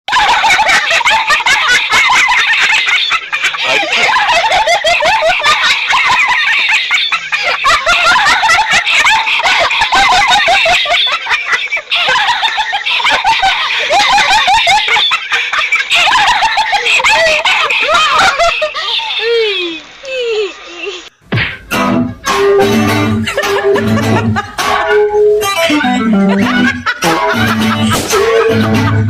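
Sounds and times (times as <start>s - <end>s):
high-pitched giggling: 0.1s - 21.1s.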